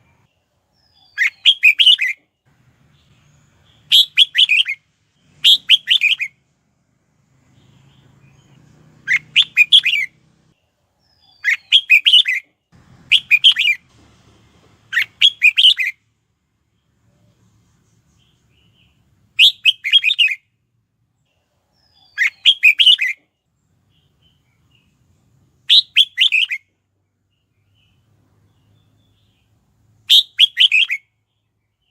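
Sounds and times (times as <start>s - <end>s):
bird singing warbling phrases: 0.0s - 2.2s, 2.8s - 6.4s, 7.4s - 12.5s, 13.1s - 13.8s, 14.9s - 16.0s, 18.2s - 20.5s, 21.3s - 26.7s, 27.3s - 31.9s.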